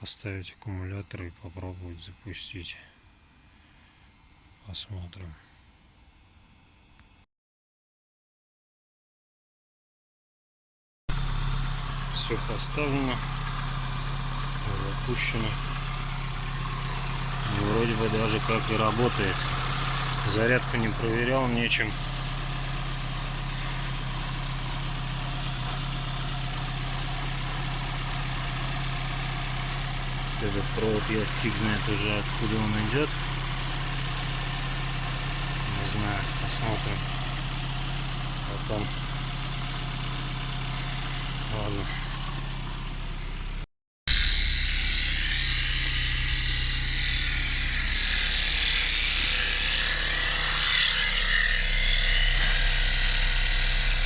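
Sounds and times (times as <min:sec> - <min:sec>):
car engine idling: 0:11.1 - 0:54.0.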